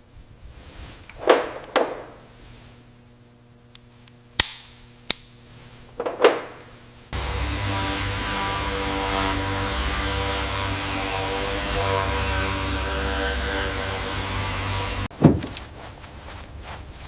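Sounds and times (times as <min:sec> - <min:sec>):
sharp knocks and clicks: 0:01.2 - 0:02.2
background music: 0:07.2 - 0:15.0.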